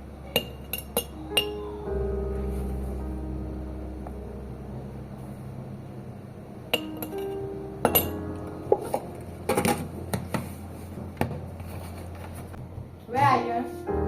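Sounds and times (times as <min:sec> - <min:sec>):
quiet background music: 0:00.0 - 0:14.0
glass and dishware clinking: 0:00.3 - 0:01.6, 0:06.7 - 0:09.9.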